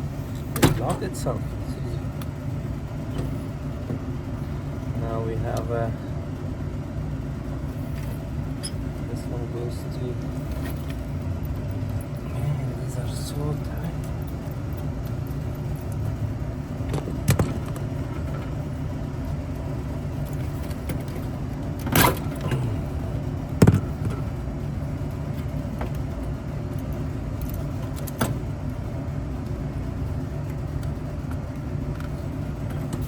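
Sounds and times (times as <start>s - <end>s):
low machinery hum: 0.0s - 33.0s
sharp metallic clicks and knocks: 16.9s - 18.5s.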